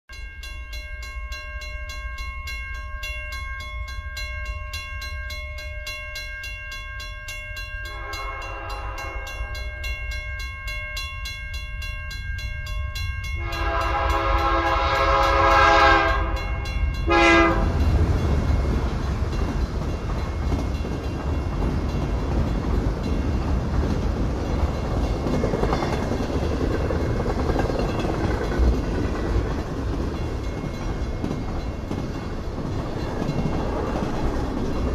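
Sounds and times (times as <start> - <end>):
railroad crossing bell dinging: 0.1 - 34.9
locomotive air horn blasts: 8.0 - 9.5, 13.4 - 17.8
train wheels rumbling on rails: 12.6 - 34.9.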